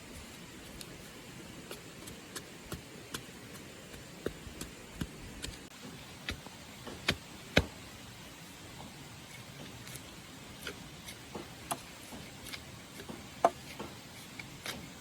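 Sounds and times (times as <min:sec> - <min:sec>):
light taps and knocks: 0:08.7 - 0:15.0.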